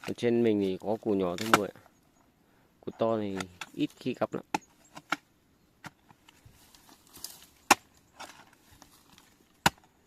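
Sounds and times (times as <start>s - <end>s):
digging tool striking ground: 1.0s - 1.8s, 3.3s - 6.4s, 7.0s - 10.0s.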